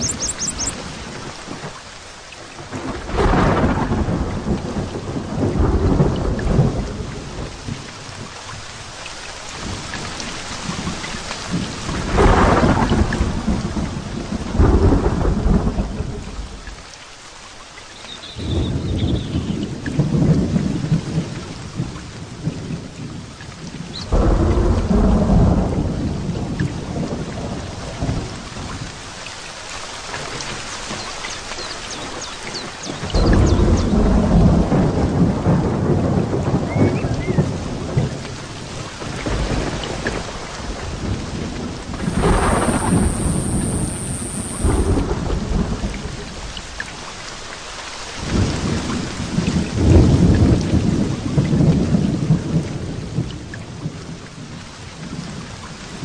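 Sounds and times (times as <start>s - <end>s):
heavy rain falling: 0.0s - 56.0s
rolls of thunder: 2.7s - 7.9s, 10.6s - 16.7s, 18.4s - 23.3s, 24.1s - 28.8s, 32.9s - 46.8s, 48.2s - 54.2s.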